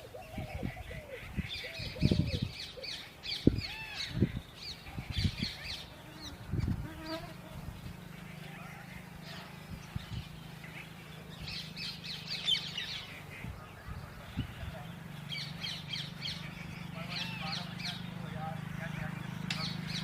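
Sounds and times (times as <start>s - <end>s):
birds chirping: 0.0s - 20.0s
honeybee buzzing: 5.4s - 13.2s.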